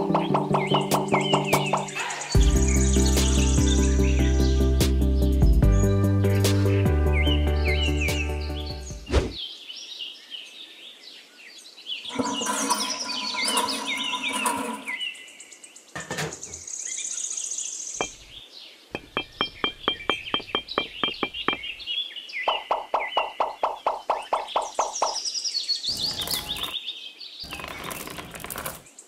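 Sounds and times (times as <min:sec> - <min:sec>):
birds chirping and singing: 0:00.0 - 0:29.0
buzzing bird trill: 0:12.1 - 0:15.2, 0:25.9 - 0:26.8.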